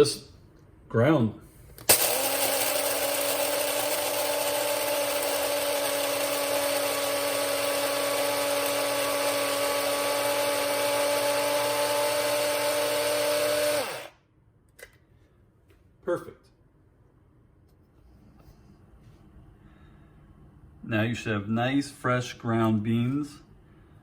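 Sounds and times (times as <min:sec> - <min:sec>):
coffee grinder grinding beans: 0:01.8 - 0:14.2.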